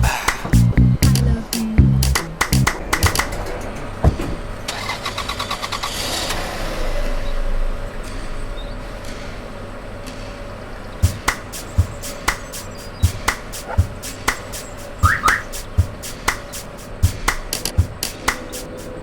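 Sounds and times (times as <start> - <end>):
rapid ticking: 0.0 - 3.3, 11.0 - 19.0.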